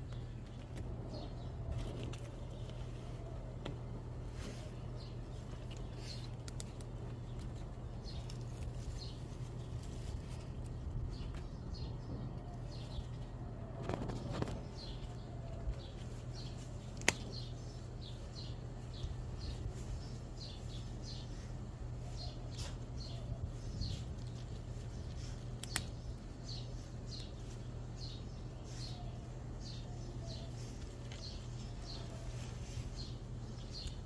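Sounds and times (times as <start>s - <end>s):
small birds chirping: 0.0s - 34.0s
steady low hum: 0.0s - 34.0s
sharp clicks: 25.5s - 26.1s.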